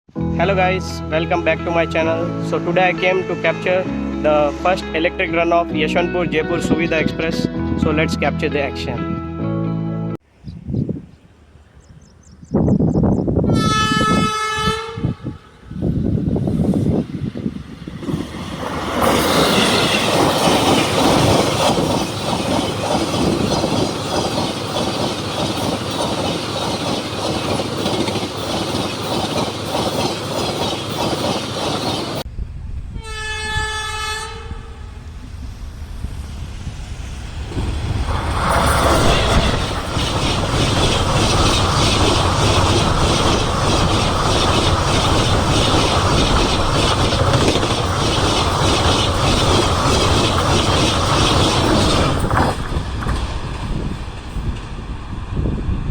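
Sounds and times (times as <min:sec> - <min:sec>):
train horn: 0:13.5 - 0:15.6, 0:32.9 - 0:35.0
train rushing past: 0:13.5 - 0:55.9
rapid wheel clatter: 0:37.6 - 0:54.7.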